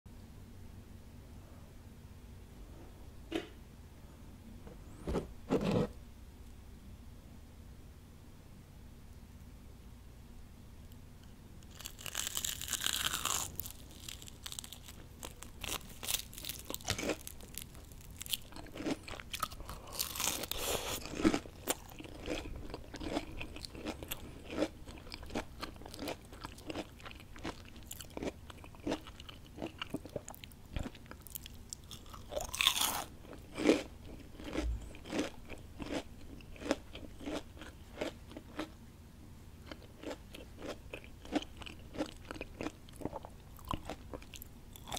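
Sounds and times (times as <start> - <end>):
crisp bites of fried food: 11.6 - 37.4
crunchy chewing: 11.6 - 38.8, 39.6 - 44.9.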